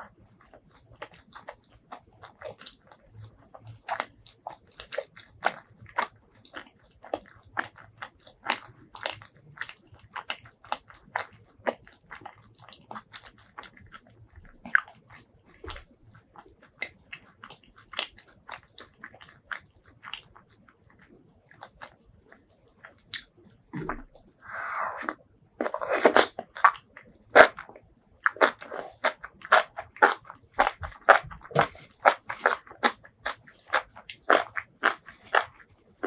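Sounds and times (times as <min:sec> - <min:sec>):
wet chewing mouth clicks: 0:00.2 - 0:36.0.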